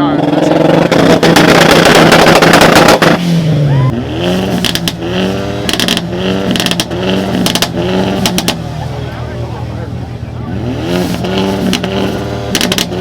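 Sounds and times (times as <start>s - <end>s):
car engine revving on limiter: 0.0s - 13.0s
exhaust pops and bangs: 0.4s - 3.4s, 4.4s - 8.8s, 11.0s - 13.0s.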